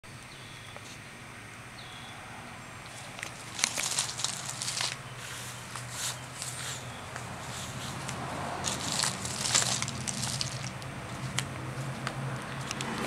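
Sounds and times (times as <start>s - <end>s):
crackling and rustling: 2.8s - 13.0s.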